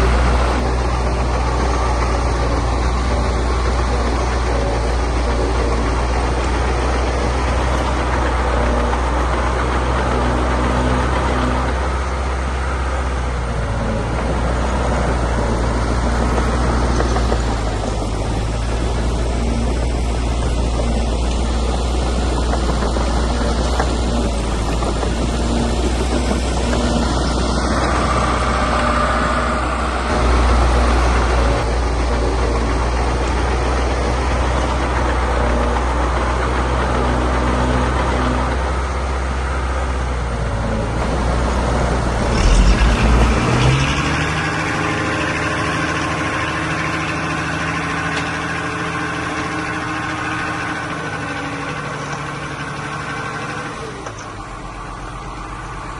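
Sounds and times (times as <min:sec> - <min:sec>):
heavy machinery diesel engines droning: 0:00.0 - 0:55.9
light engine hum: 0:00.0 - 0:55.9.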